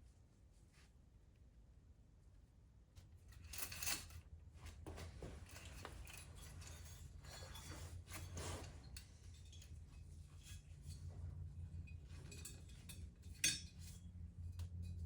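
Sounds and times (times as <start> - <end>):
metal tools clinking and scraping: 5.6 - 11.1, 11.8 - 14.0.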